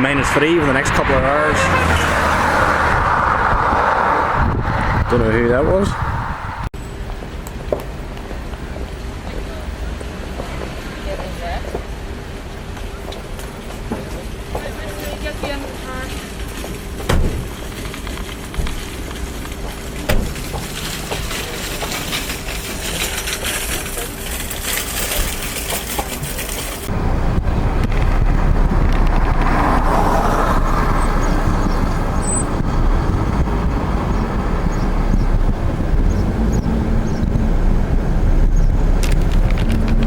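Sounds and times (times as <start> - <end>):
deep rumble: 0.0 - 6.7, 26.8 - 40.0
car road and engine noise: 0.0 - 40.0.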